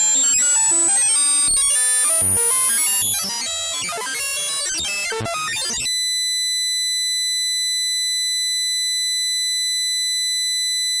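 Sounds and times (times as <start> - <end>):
high-pitched buzzy tone: 0.0 - 5.9
jumble of mixed tones: 0.0 - 5.9.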